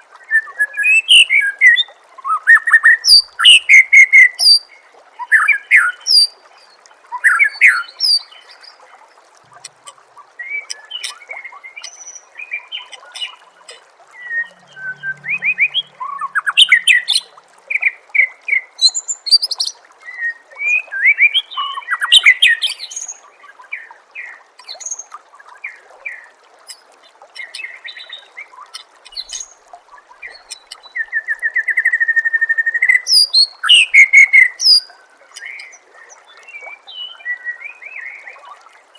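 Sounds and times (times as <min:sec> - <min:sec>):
faint hiss of flowing water: 0:00.0 - 0:38.9
bird singing whistles and trills: 0:07.2 - 0:08.8, 0:14.2 - 0:23.8, 0:30.2 - 0:35.8.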